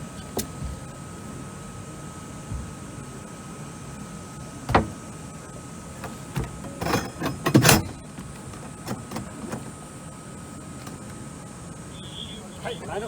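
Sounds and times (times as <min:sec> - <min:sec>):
boat hull knocking against landing: 0:04.7 - 0:05.1.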